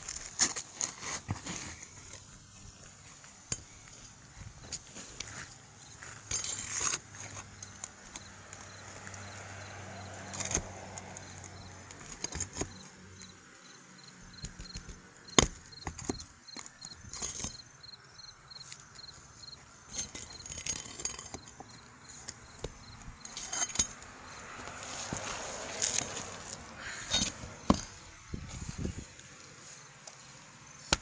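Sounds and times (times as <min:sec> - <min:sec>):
tools knocking on roof shingles: 0:14.4 - 0:16.3.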